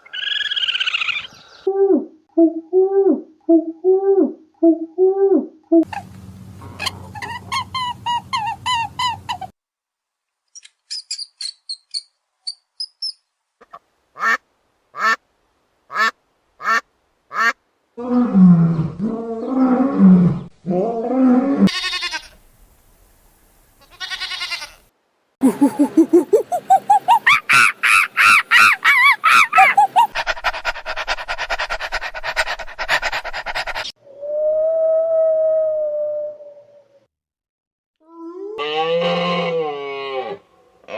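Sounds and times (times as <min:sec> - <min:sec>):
bird and animal calls: 0:00.0 - 0:01.7, 0:05.9 - 0:09.5, 0:25.4 - 0:33.9
ducks quacking: 0:05.9 - 0:09.5, 0:25.4 - 0:33.9.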